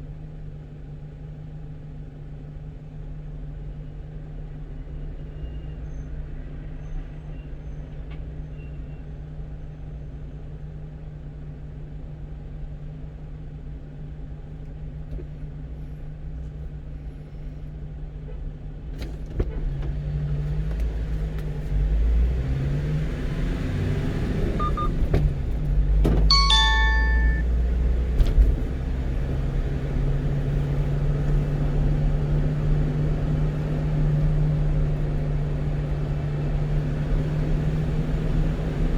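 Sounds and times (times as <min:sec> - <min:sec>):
truck engine and road noise: 0:00.0 - 0:38.9
short electronic chime: 0:26.3 - 0:27.4.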